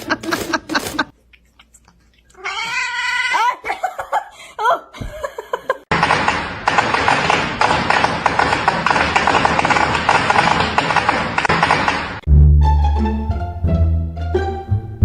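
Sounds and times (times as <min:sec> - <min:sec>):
cat meowing: 0:02.4 - 0:03.4.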